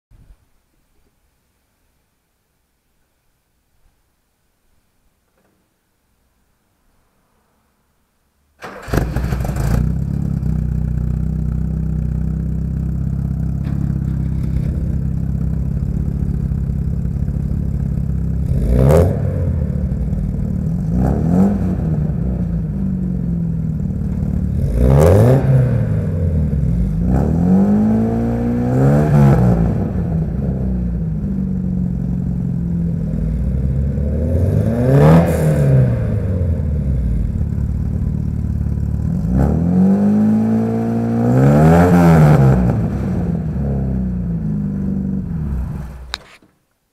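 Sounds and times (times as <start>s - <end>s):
car engine idling: 8.6s - 27.1s, 29.8s - 34.2s, 36.0s - 39.4s
engine throttle blips: 8.6s - 46.2s.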